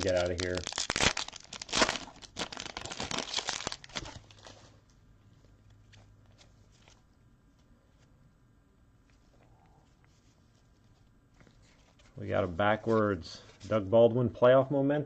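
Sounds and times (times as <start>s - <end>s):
wrapper tearing and crinkling: 0.0s - 4.5s.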